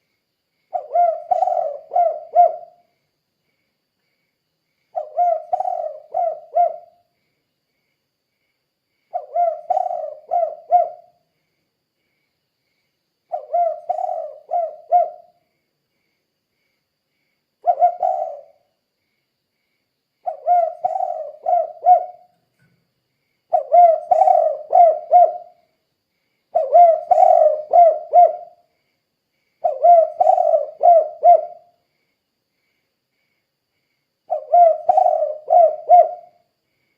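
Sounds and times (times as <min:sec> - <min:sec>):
dove cooing: 0:00.7 - 0:02.9, 0:05.0 - 0:07.1, 0:09.1 - 0:11.2, 0:13.3 - 0:15.4, 0:17.6 - 0:18.7, 0:20.2 - 0:22.3, 0:23.5 - 0:25.6, 0:26.5 - 0:28.6, 0:29.6 - 0:31.7, 0:34.3 - 0:36.4.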